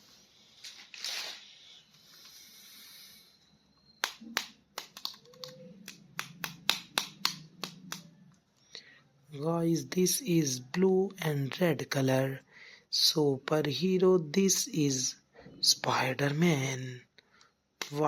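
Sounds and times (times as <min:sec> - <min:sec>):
plastic rustle: 0:00.4 - 0:01.8.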